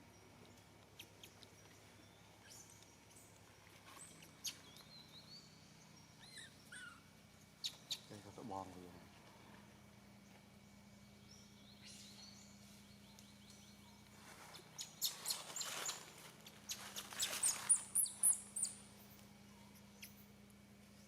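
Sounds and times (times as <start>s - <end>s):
high-pitched animal chirps and squeaks: 6.2s - 7.0s.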